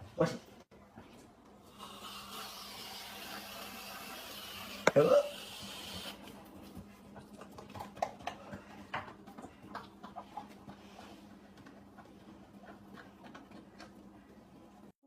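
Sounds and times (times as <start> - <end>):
dog licking: 6.2 - 14.4.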